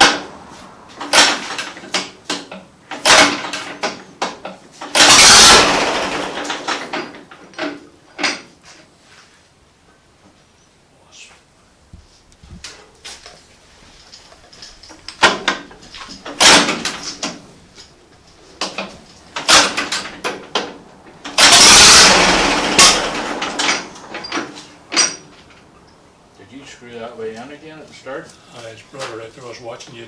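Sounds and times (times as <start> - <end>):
noisy burst: 4.9 - 7.1, 19.3 - 25.0
metallic knocks and tool clatter: 6.4 - 8.8, 12.6 - 21.6, 22.8 - 26.0.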